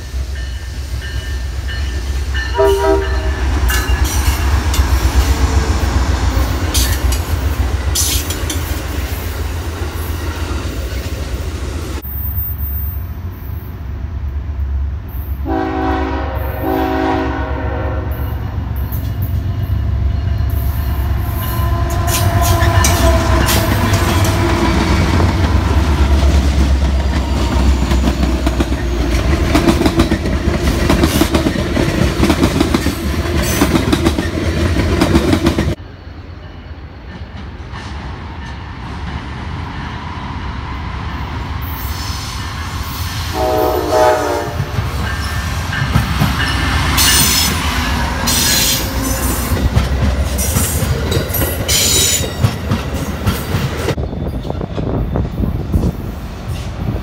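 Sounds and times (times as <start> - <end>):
train wheels clattering on rails: 0.0 - 5.7, 6.3 - 9.6, 21.9 - 35.8, 44.5 - 57.0
freight trains rumbling past: 0.0 - 57.0
train horn: 2.4 - 3.9, 15.4 - 18.6, 20.9 - 24.6, 43.2 - 45.1.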